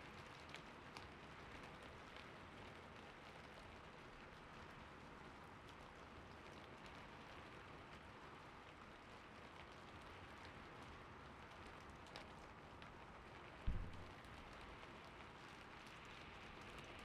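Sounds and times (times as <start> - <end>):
gentle rain falling: 0.0 - 17.0
dull low thump: 13.7 - 14.2.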